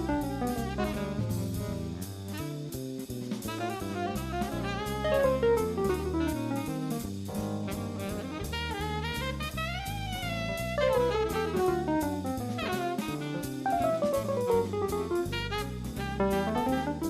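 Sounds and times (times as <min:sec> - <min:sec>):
jazz orchestra playing swing: 0:00.0 - 0:17.0.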